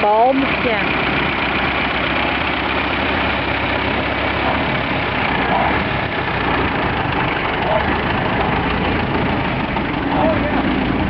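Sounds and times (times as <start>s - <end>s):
car engine idling: 0.0s - 11.0s
faint voices: 10.0s - 10.9s.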